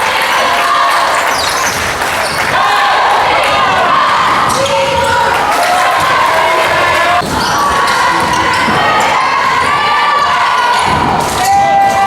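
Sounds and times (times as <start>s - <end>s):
players and crowd shouting: 0.0s - 12.0s
basketball bouncing on gym floor: 3.2s - 12.0s.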